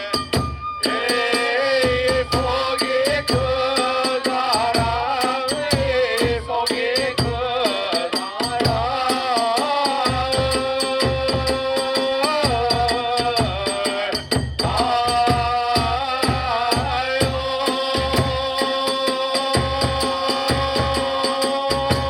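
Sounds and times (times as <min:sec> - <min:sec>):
bamboo flute melody: 0:00.0 - 0:05.3
fast drum beats: 0:00.0 - 0:22.0.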